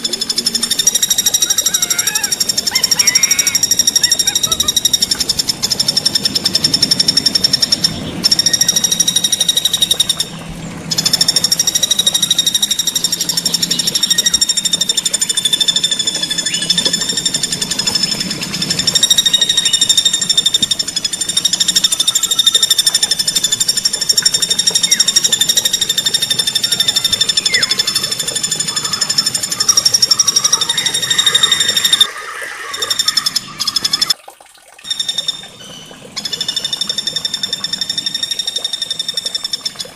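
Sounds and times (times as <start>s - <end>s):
songbird rapid rolling trill: 0.0s - 34.2s.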